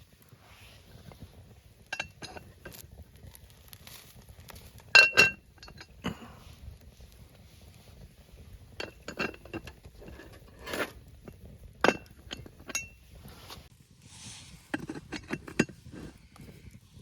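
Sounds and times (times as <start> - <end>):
metal cookware clinking: 1.9 - 2.6, 5.0 - 6.0, 8.7 - 13.0, 14.8 - 15.8.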